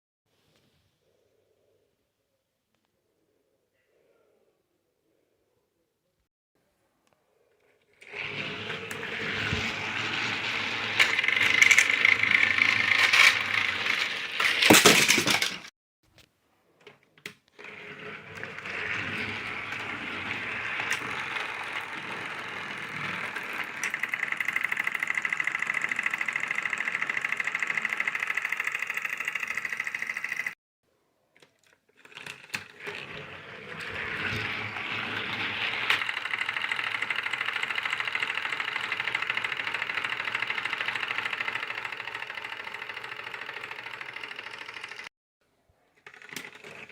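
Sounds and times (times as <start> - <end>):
toy train motor whirring: 7.7 - 15.6, 17.6 - 30.6, 31.6 - 45.1, 46.0 - 46.9
loud clatter: 8.2 - 15.7.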